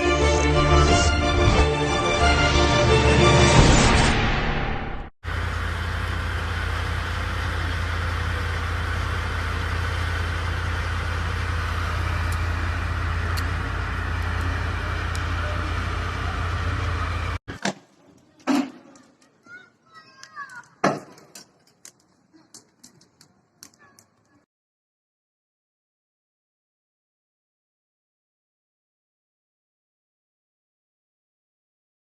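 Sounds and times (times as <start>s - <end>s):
intro music: 0.0s - 5.1s
vehicle engine idling: 5.2s - 17.4s.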